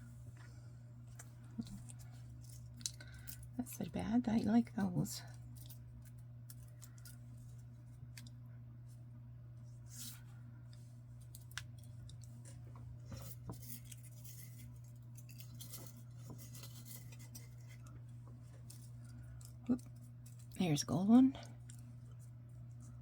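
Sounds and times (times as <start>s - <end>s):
paper rustling: 12.4s - 18.9s.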